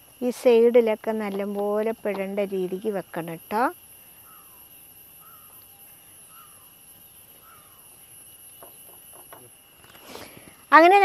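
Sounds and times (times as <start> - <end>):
faint bird calling: 4.0 - 9.0.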